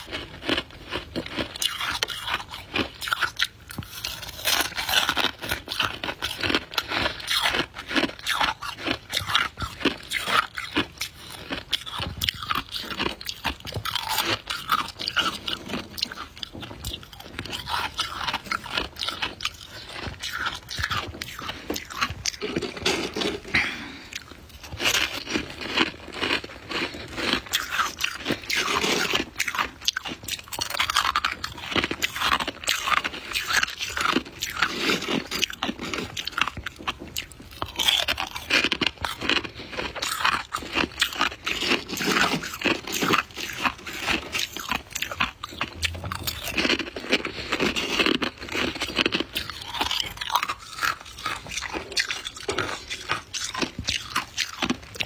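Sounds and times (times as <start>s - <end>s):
chewing crunchy ice: 0.0s - 55.0s.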